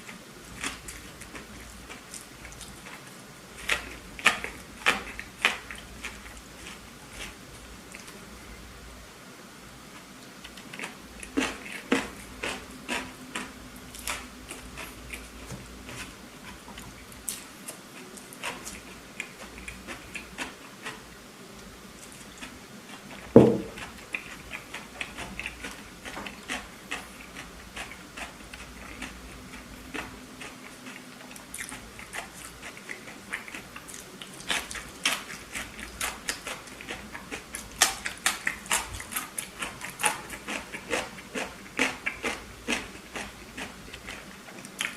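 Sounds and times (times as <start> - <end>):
chewing and biting food: 0.0 - 8.2, 10.4 - 21.2, 22.0 - 44.9
loud thump: 23.4 - 23.8.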